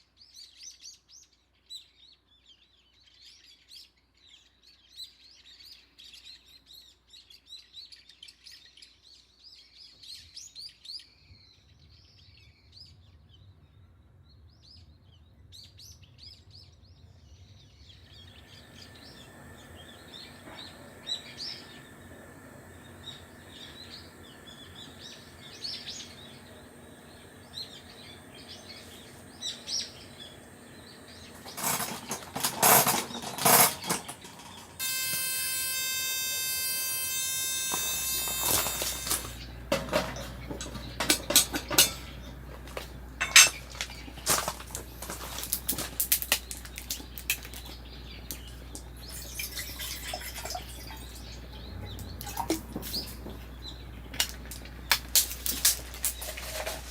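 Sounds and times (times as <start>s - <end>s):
small birds chirping: 0.0s - 56.9s
loud noisy bursts: 18.5s - 46.7s
steady sustained tone: 34.8s - 39.6s.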